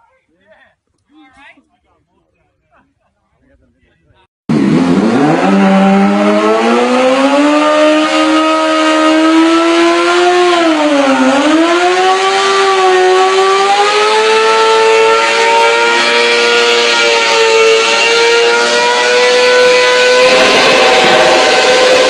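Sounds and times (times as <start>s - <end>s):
motorcycle engine accelerating: 4.5s - 22.0s.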